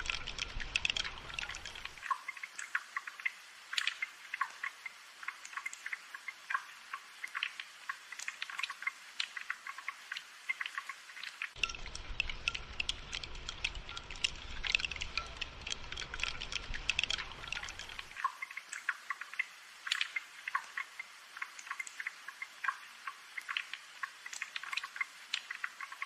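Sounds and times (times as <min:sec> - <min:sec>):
fuller lower rain sound: 0:00.0 - 0:26.0
rain dripping and pattering: 0:00.0 - 0:26.0.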